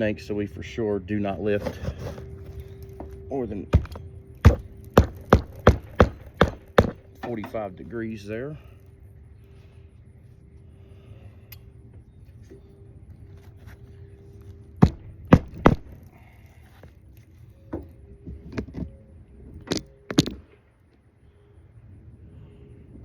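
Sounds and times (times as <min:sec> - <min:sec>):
low outdoor rumble: 0:00.0 - 0:23.0
metal tool knocking on shingles: 0:03.0 - 0:07.6, 0:14.8 - 0:16.0.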